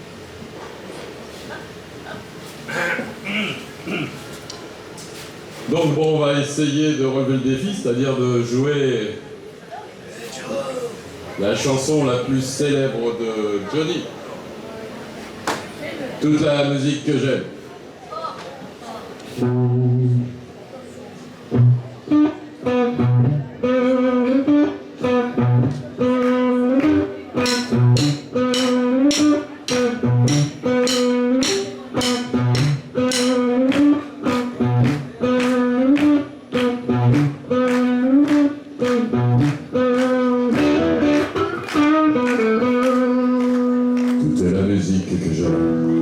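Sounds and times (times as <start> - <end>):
guitar riff: 19.4 - 20.4, 21.5 - 46.0
bass notes: 22.8 - 44.6
steady drum beat: 26.2 - 44.2.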